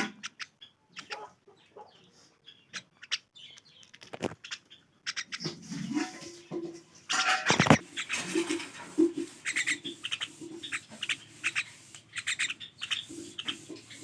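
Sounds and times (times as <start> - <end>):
myna calling: 0.2 - 2.0, 7.2 - 14.0.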